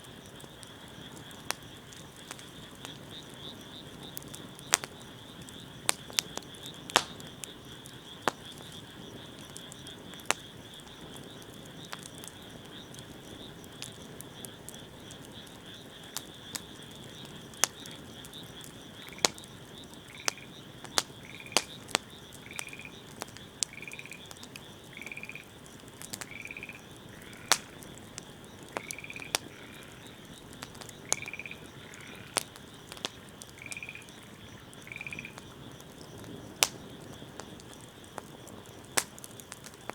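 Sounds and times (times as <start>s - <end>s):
frogs trilling: 0.0s - 39.9s
wood fire crackling: 0.0s - 39.9s
frog calling: 15.8s - 35.9s.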